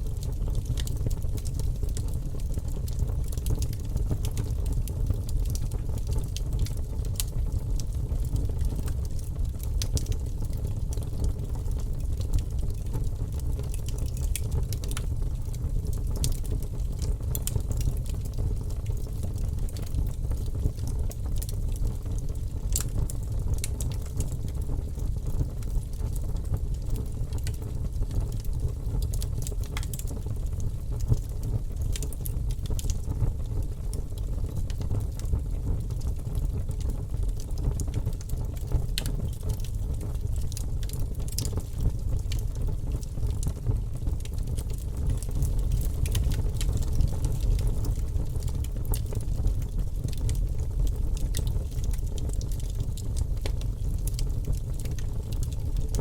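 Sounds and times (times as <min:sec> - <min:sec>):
campfire crackling and popping: 0:00.1 - 0:56.0.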